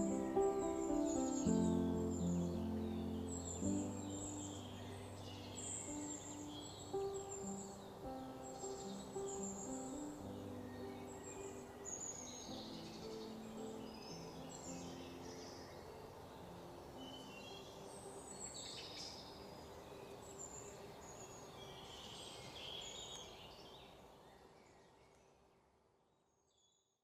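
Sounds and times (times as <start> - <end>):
steady hiss: 0.0 - 24.4
small birds chirping: 0.0 - 25.5.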